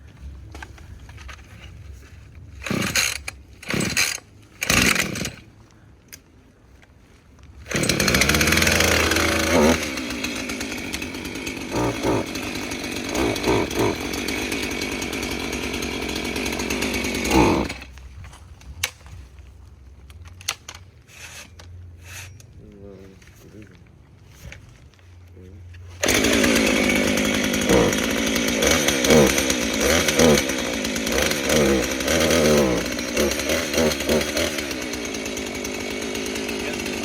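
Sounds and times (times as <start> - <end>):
chainsaw revving: 2.6 - 5.4, 7.7 - 18.0, 26.0 - 37.0.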